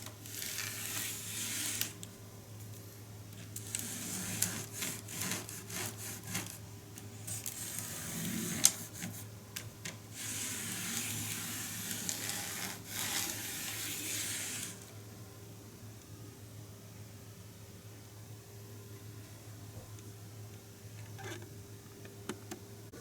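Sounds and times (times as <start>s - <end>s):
faint steady hum: 0.0s - 23.0s
scrubbing on model railway rails: 3.6s - 6.6s, 10.2s - 14.9s.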